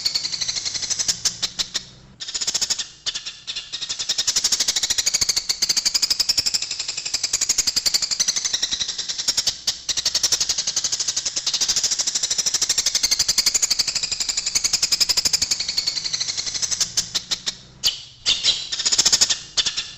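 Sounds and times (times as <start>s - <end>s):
sparrows chattering: 9.3s - 19.9s.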